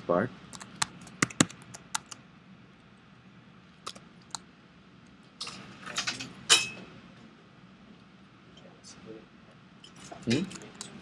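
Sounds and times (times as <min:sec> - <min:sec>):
faint room hum: 0:00.0 - 0:11.0
keyboard and mouse clicks: 0:00.5 - 0:02.2, 0:03.8 - 0:04.4.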